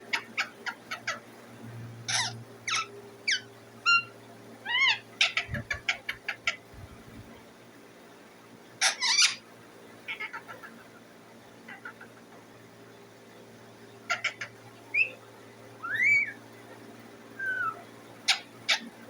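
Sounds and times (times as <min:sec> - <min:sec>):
parakeet chirping and whistling: 0:02.1 - 0:04.1, 0:04.7 - 0:06.9, 0:08.8 - 0:09.4, 0:14.1 - 0:15.2, 0:15.8 - 0:16.4, 0:17.4 - 0:18.9.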